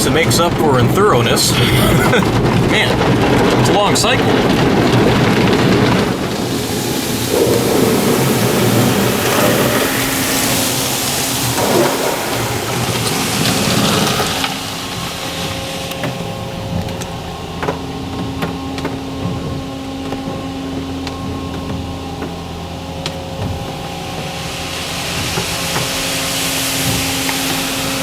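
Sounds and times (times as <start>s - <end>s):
car wash machine hum: 0.0s - 28.0s
water spray drumming on car: 0.0s - 28.0s.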